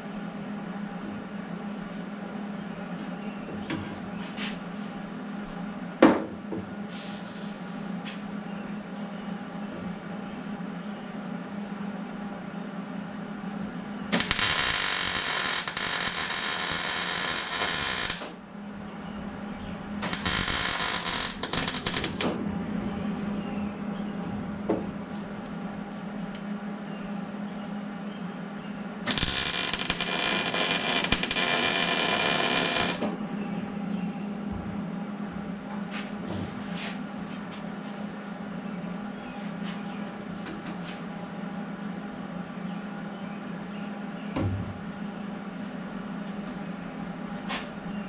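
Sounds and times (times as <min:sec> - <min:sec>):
steady hum: 0:00.0 - 0:48.0
welding arc crackling: 0:14.1 - 0:18.4, 0:20.0 - 0:22.4, 0:29.1 - 0:33.1.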